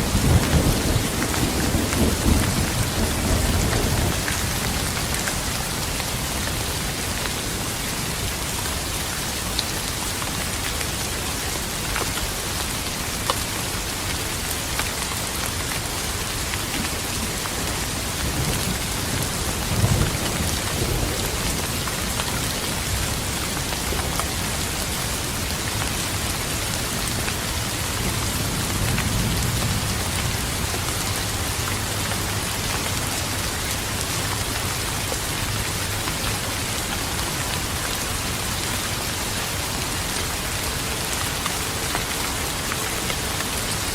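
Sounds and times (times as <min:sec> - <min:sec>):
thunder rumbling: 0:00.0 - 0:06.8, 0:17.1 - 0:25.5
steady rain: 0:00.0 - 0:43.9.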